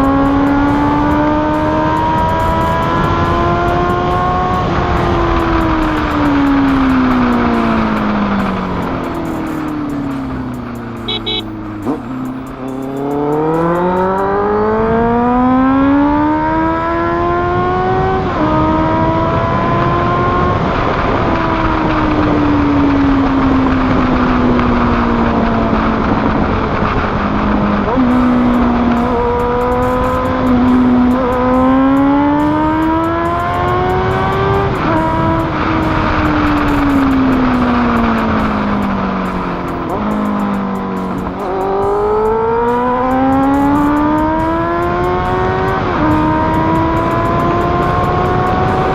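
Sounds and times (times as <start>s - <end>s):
motorcycle engine accelerating: 0.0s - 48.9s
wind rush: 11.6s - 43.4s.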